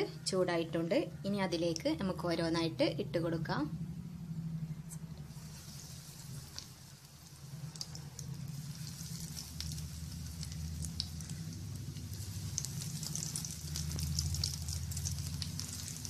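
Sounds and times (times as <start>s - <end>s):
low steady hum: 0.0s - 16.0s
food frying in hot oil: 5.2s - 16.0s.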